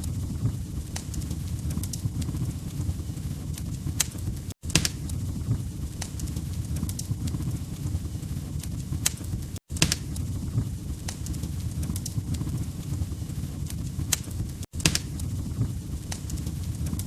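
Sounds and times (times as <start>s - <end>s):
logs crackling and popping: 0.0s - 17.0s
rumble of flames: 0.0s - 17.0s.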